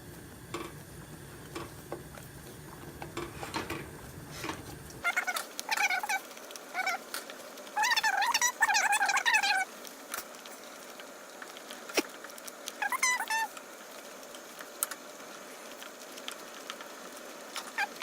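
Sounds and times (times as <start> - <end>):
high wavering animal-like calls: 5.0 - 7.0, 7.8 - 9.7, 12.8 - 13.5.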